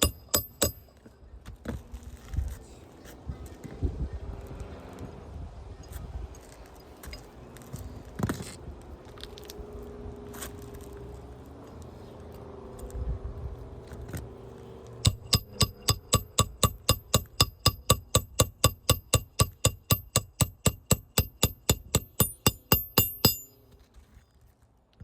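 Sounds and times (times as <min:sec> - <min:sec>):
hammer striking metal: 0:00.0 - 0:00.9, 0:15.0 - 0:23.7.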